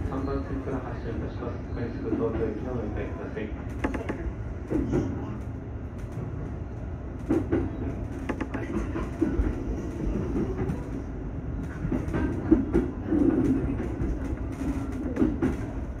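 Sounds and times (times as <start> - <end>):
electric train rumbling: 0.0 - 16.0
wheels clacking over rail joints: 7.2 - 11.0.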